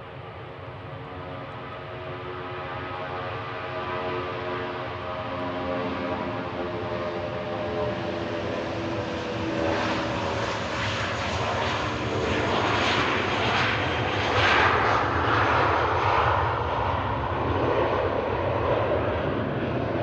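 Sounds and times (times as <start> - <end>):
jet airliner engine roar: 0.0 - 20.0
steady engine whine: 0.0 - 20.0.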